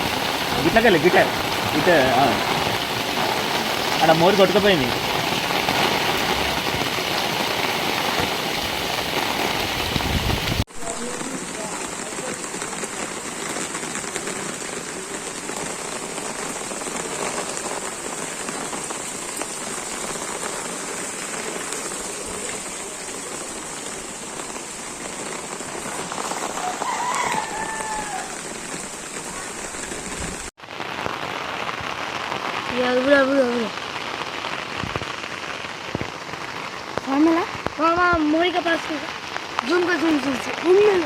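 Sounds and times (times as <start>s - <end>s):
running water: 0.0s - 30.5s
heavy rain pouring: 0.0s - 41.0s.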